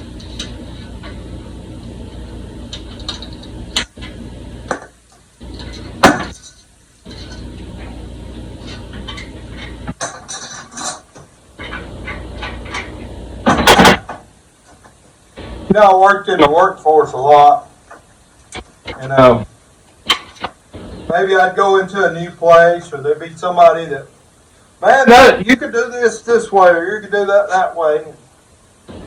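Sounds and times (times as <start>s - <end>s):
steady low hum: 0.0s - 29.0s
metal clatter: 2.7s - 4.9s, 5.5s - 8.0s, 8.6s - 15.0s
metal clank: 5.5s - 8.0s, 8.6s - 14.2s
metal tools clinking and scraping: 5.5s - 8.0s, 8.6s - 13.1s.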